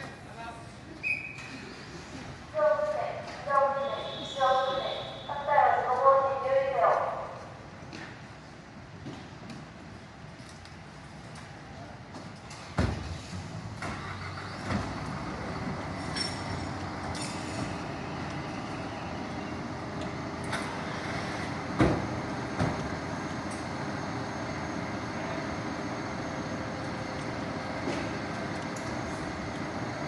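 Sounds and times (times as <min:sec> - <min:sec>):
truck engine running: 0:13.2 - 0:30.0.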